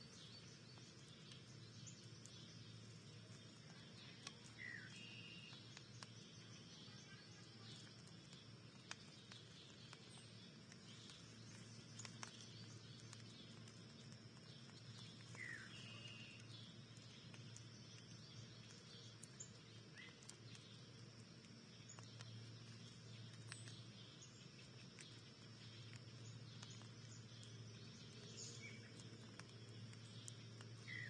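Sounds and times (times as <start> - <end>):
distant bird chirps: 0.0 - 21.0
low steady hum: 0.0 - 31.0
faint clicks: 3.2 - 31.0.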